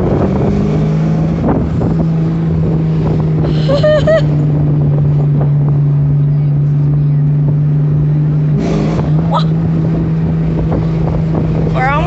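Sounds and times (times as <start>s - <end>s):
car exhaust droning: 0.0s - 12.0s.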